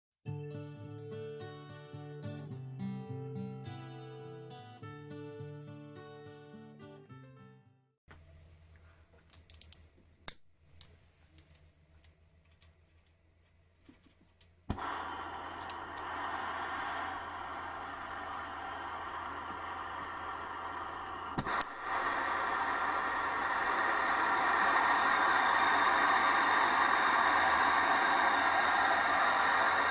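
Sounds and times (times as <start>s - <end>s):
low steady hum: 8.1s - 29.9s
gas burner ignition click: 14.7s - 21.9s
gas flame hissing: 14.7s - 29.9s.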